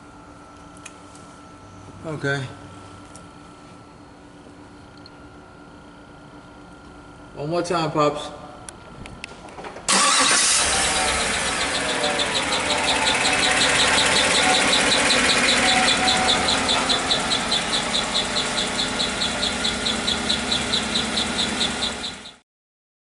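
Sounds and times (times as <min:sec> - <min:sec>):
car engine starting and running: 0:09.9 - 0:22.4
rapid ticking engine knock: 0:11.3 - 0:22.4.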